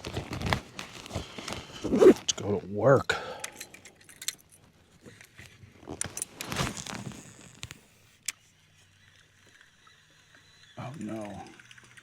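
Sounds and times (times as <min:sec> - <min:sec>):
fishing gear clicking and rattling: 0:00.0 - 0:08.4.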